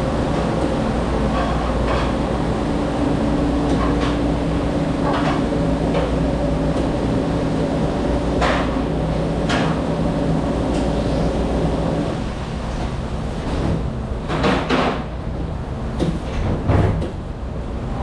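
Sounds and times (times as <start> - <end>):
dishwashing machinery humming: 0.0 - 18.0.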